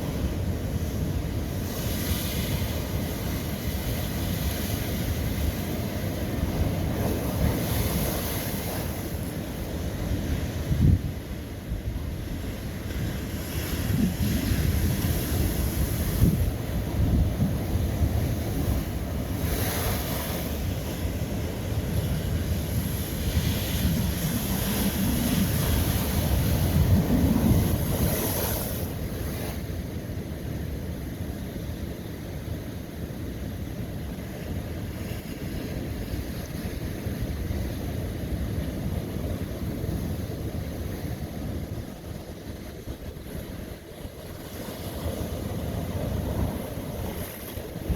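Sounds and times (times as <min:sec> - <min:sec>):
wind noise on microphone: 0:00.0 - 0:47.9
ocean waves breaking on rock: 0:12.5 - 0:30.0, 0:35.2 - 0:47.9.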